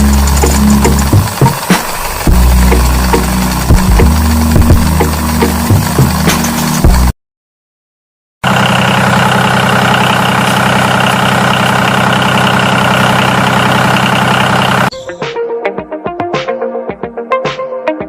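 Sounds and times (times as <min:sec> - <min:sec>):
electronic music with plucked notes: 0:00.0 - 0:07.1, 0:14.9 - 0:18.0
engine idling: 0:00.0 - 0:07.1, 0:08.4 - 0:14.9.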